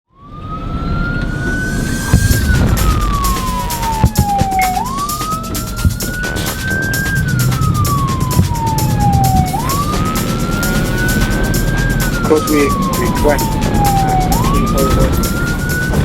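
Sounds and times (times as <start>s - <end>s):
fire engine siren wailing: 0.1s - 16.0s
engine and road rumble: 0.2s - 16.0s.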